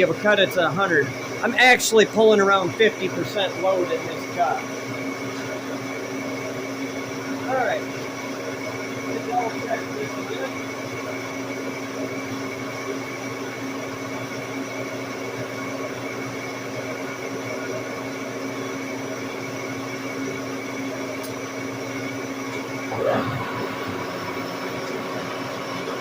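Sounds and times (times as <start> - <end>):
lathe machine hum: 0.0 - 26.0
gear whine: 22.8 - 26.0.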